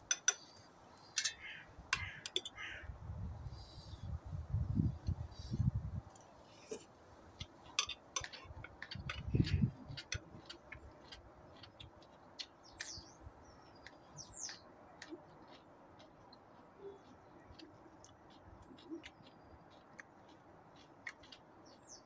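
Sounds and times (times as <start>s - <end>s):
birds chirping: 0.1s - 2.9s, 7.4s - 22.0s
crisp chewing clicks: 7.4s - 22.0s.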